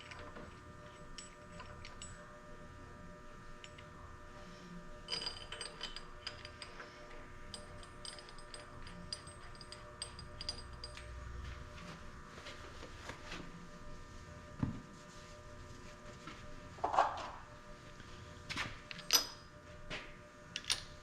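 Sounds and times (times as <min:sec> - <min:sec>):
steady hum: 0:00.0 - 0:21.0
light metallic clinks: 0:07.5 - 0:11.2.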